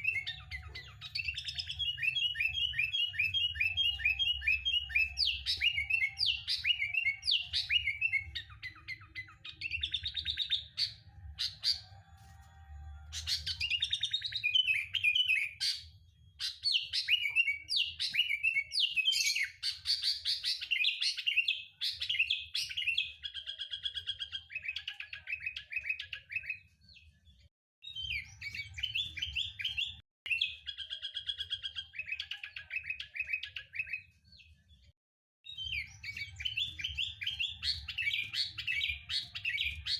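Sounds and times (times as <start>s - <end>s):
bulbul chirping and whistling: 0.0s - 11.9s, 35.5s - 39.9s.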